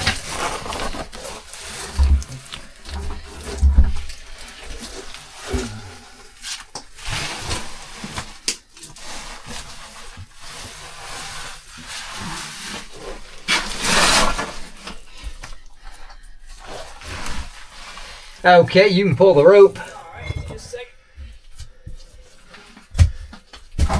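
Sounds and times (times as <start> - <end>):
boots and rope scraping on rock: 9.6 - 15.0.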